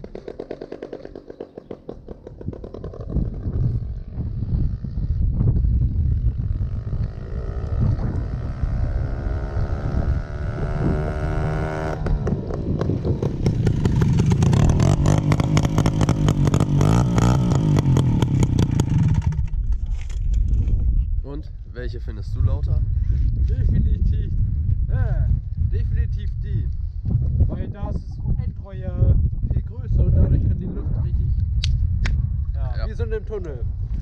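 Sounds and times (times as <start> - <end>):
two-stroke moped engine revving: 0.0 - 5.0, 6.2 - 19.5
rapid rattling exhaust pulses: 0.0 - 19.7.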